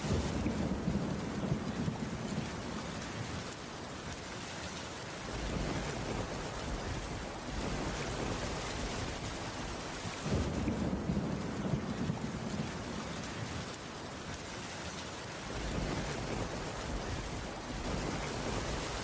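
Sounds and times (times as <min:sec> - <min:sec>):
thunder rumbling: 0:00.0 - 0:03.0, 0:05.3 - 0:13.8, 0:15.5 - 0:19.0
steady rainfall: 0:00.0 - 0:19.0.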